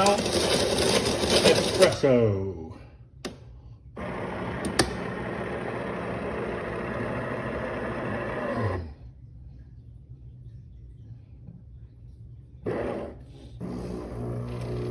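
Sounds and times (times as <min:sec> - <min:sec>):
coffee maker whirring: 0:00.0 - 0:02.2, 0:04.0 - 0:09.0, 0:12.6 - 0:14.9.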